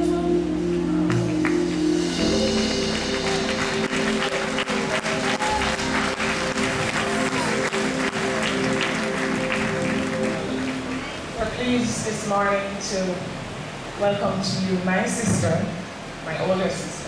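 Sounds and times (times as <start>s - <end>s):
band holding chords: 0.0s - 12.4s
congregation applauding: 1.1s - 11.4s.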